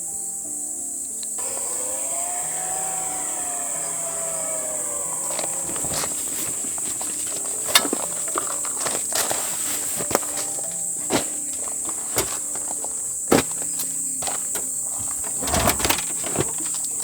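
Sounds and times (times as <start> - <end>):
crickets chirring: 0.0 - 17.0
rising and falling tone: 1.4 - 6.4.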